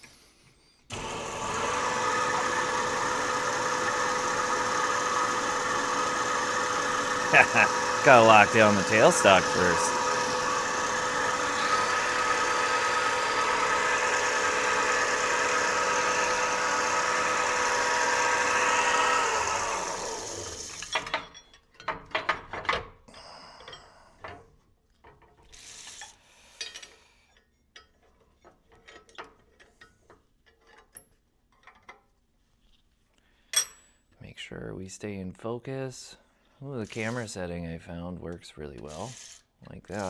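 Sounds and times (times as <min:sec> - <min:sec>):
metal lathe whining: 0:00.9 - 0:20.9
metal parts clicking and knocking: 0:27.8 - 0:32.1.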